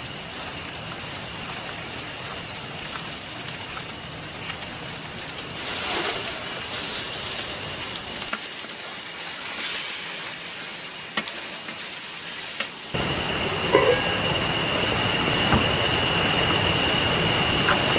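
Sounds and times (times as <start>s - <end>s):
food sizzling in a pan: 0.0s - 17.9s
thin steady whine: 12.9s - 17.9s.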